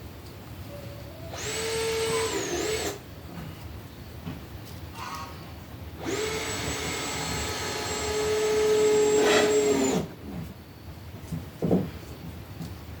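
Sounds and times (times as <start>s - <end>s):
power drill whining: 1.3s - 3.0s, 6.0s - 10.1s.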